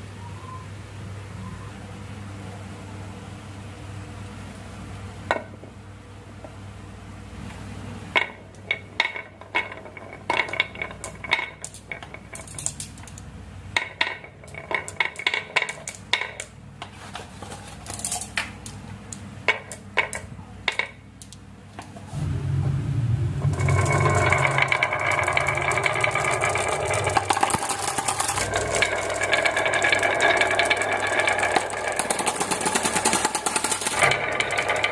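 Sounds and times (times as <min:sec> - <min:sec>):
glass marbles clacking on a track: 0:08.2 - 0:13.2, 0:13.8 - 0:16.5, 0:23.6 - 0:34.9.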